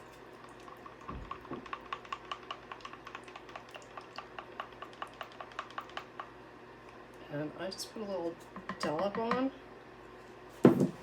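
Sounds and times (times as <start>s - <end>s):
stirrer clicking against container: 1.2s - 6.3s.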